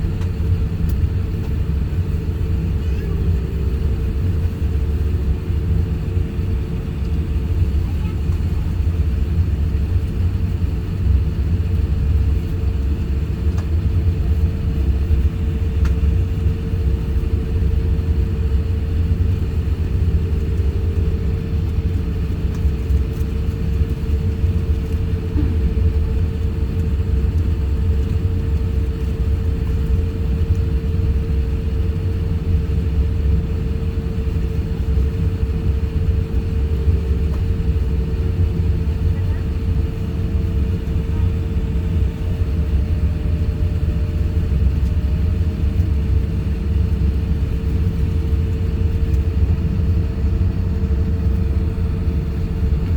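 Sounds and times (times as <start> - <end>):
airliner cabin rumble: 0.0 - 52.9
steady hum: 14.3 - 28.2.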